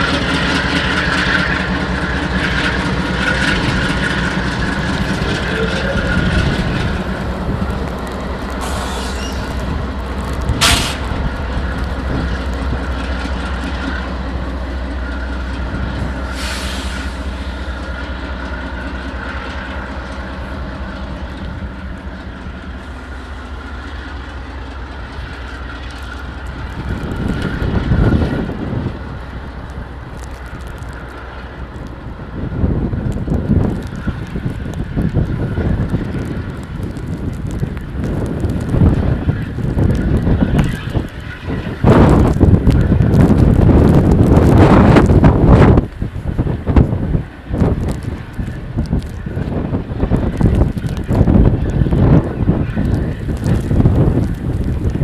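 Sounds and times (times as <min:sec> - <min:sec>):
diesel locomotive hum: 0:00.0 - 0:55.0
rail cars clattering on track: 0:00.0 - 0:55.0
high wheel squeal: 0:05.0 - 0:09.8.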